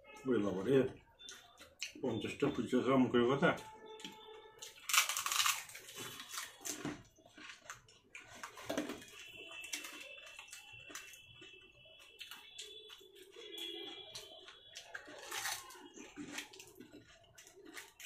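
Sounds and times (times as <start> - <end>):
crisp shells crunching: 4.6 - 11.2, 14.1 - 18.0.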